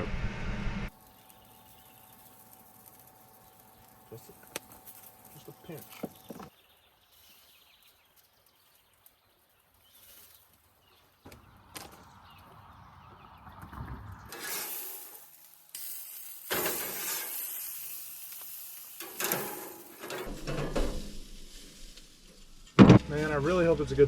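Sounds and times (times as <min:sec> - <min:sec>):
food sizzling in a pan: 0:00.9 - 0:05.8, 0:14.3 - 0:22.7.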